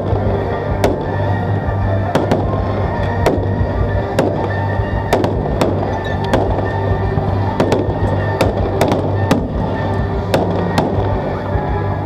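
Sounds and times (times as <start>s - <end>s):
fireworks bursting with bangs: 0.0s - 12.0s
music playing: 0.0s - 12.0s.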